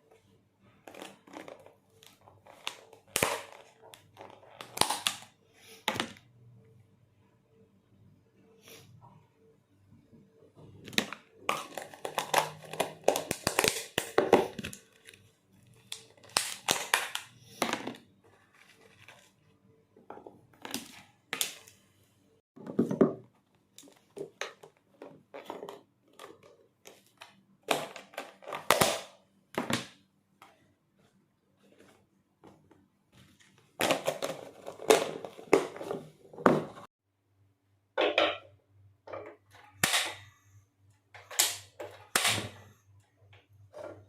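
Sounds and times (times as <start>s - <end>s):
crinkling and rustling: 0.0s - 5.1s, 10.7s - 21.8s, 30.4s - 36.9s.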